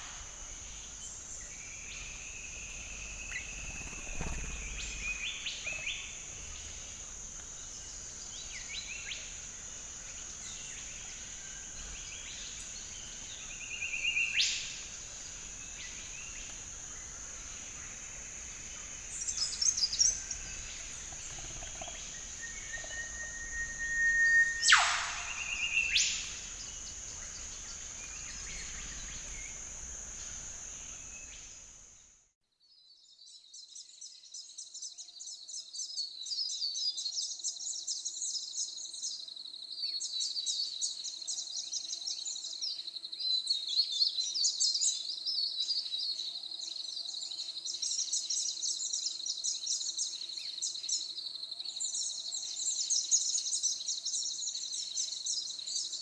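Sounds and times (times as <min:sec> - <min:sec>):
small birds chirping: 0:00.0 - 0:32.0
high hiss: 0:00.0 - 0:32.1.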